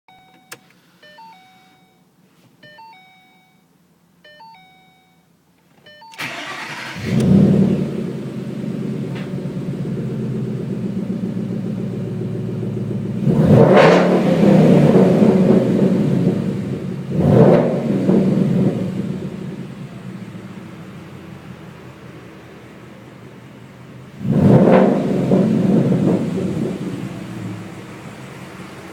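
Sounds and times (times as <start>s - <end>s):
car engine cranking and idling: 0.1s - 1.4s, 5.4s - 28.9s
engine throttle blips: 0.1s - 2.0s, 5.7s - 28.9s
car chime falling tones: 0.1s - 6.9s.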